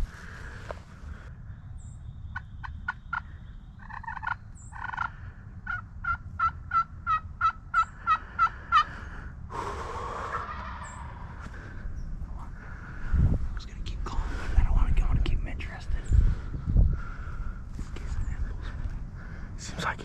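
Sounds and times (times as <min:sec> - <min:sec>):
wild turkey yelping: 0:02.4 - 0:09.0, 0:10.2 - 0:11.4
turkey rattling call: 0:03.8 - 0:08.9, 0:10.3 - 0:11.2.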